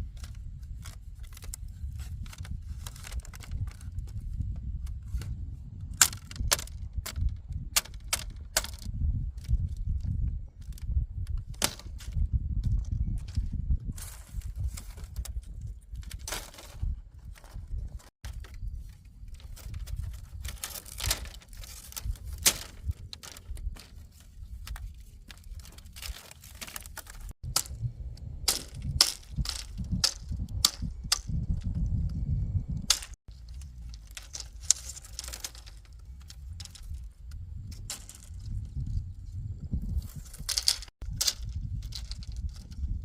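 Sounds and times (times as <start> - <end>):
sharp knocks and cracks: 5.9 - 9.5, 11.4 - 12.2, 14.0 - 16.8, 17.4 - 31.9, 32.8 - 37.0, 37.7 - 38.4, 40.1 - 42.7
steady low rumble: 27.1 - 43.0.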